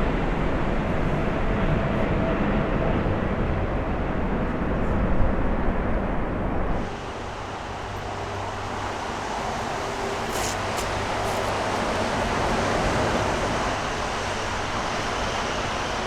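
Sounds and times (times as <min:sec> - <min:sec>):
jet engines running: 0:06.9 - 0:16.0.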